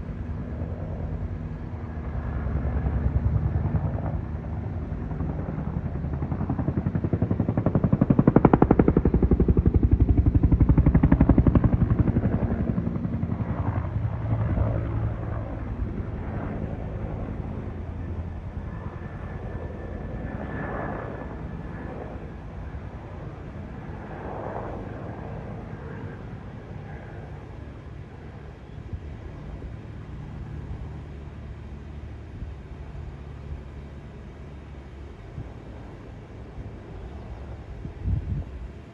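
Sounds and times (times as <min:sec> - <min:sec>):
helicopter rotor chopping: 0:00.0 - 0:38.9.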